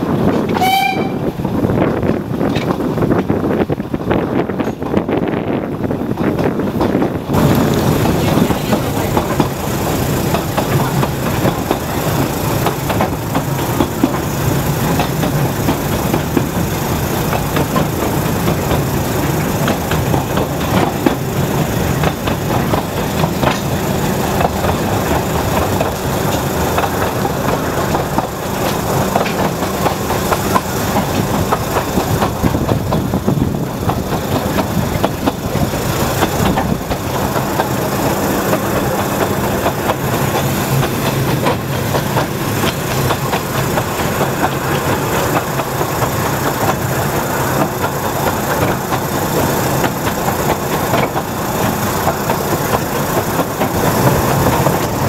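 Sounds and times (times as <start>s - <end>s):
train wheels rattling on rails: 0.0s - 55.0s.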